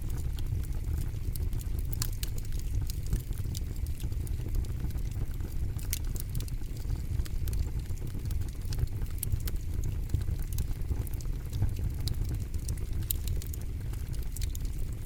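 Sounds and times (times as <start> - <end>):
burning wood popping and snapping: 0.0 - 15.0
campfire flames rumbling: 0.0 - 15.0.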